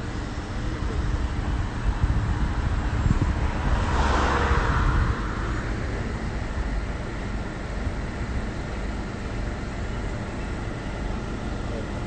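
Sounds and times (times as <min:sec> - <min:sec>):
low traffic rumble: 0:00.0 - 0:12.0
vehicle passing: 0:02.6 - 0:07.1.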